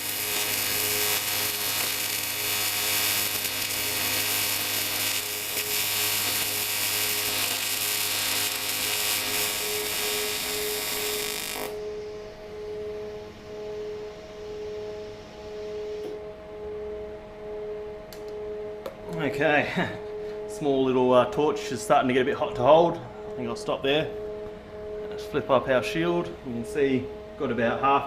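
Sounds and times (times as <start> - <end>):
welding arc buzzing hiss: 0.0 - 11.8
steady hum: 0.0 - 28.0.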